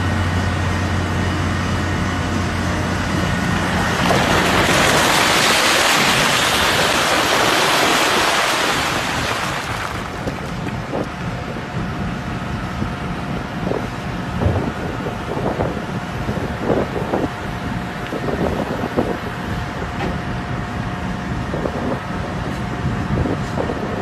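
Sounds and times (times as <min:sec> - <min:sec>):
diesel truck engine running: 0:00.0 - 0:24.0
wind buffeting microphone: 0:03.1 - 0:24.0.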